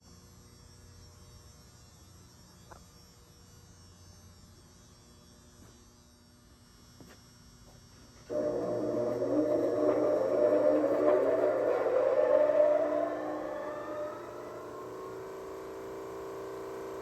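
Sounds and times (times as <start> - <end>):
faint steady hum: 7.6 - 17.0
disc sander running: 8.3 - 17.0.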